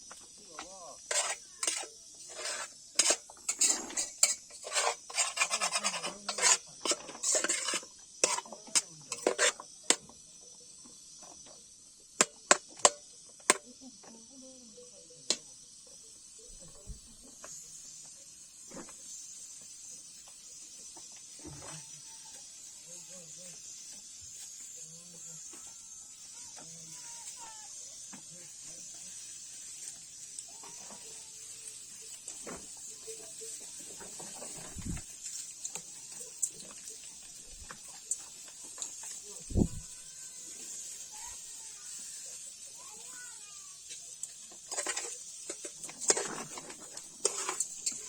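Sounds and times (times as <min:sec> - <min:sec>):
utensil scraping a cooking pot: 0:01.0 - 0:10.1, 0:28.8 - 0:43.2, 0:43.8 - 0:48.0.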